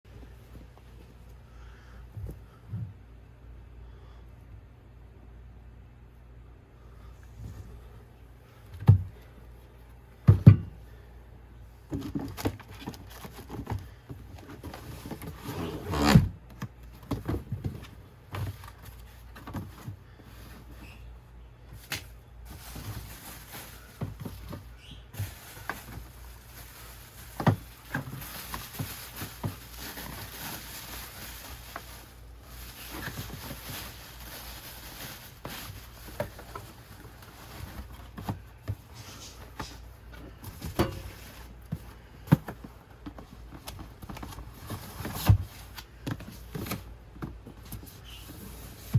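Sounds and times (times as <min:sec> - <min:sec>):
shoebox handling taps and rustles: 0:11.9 - 0:15.4, 0:16.2 - 0:20.8, 0:21.8 - 0:26.2, 0:27.2 - 0:30.9, 0:35.4 - 0:48.0.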